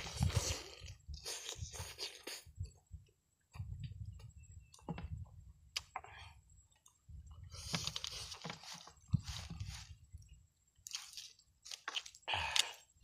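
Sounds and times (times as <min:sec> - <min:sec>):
person chewing with wet clicks: 0:10.8 - 0:12.9.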